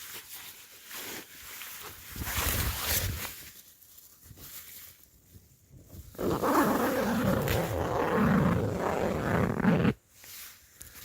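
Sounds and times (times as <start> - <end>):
tent zip pulled open: 6.0 - 10.0.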